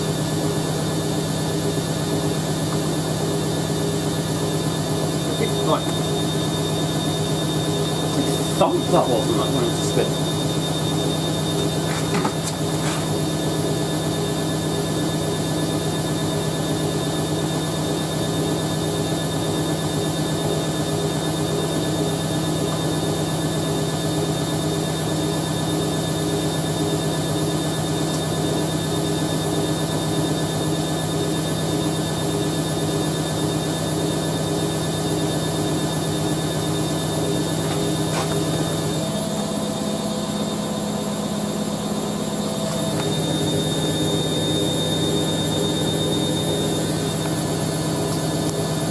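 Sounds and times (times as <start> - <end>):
washing machine spinning: 0.0 - 48.9.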